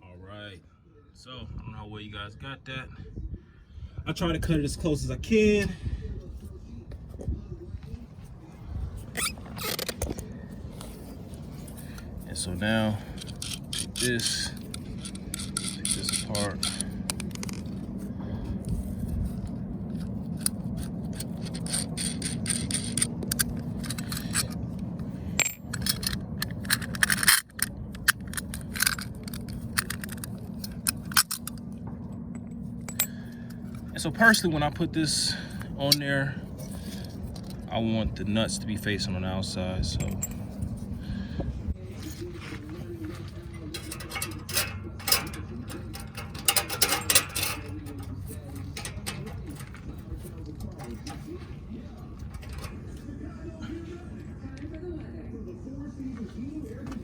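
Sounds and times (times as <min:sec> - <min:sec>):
steady low hum: 0:00.0 - 0:57.0
metal-on-metal scraping: 0:09.0 - 0:31.6, 0:41.9 - 0:53.1
metal clinks and knocks: 0:09.2 - 0:18.0, 0:18.6 - 0:34.4, 0:39.9 - 0:40.9, 0:42.0 - 0:53.1.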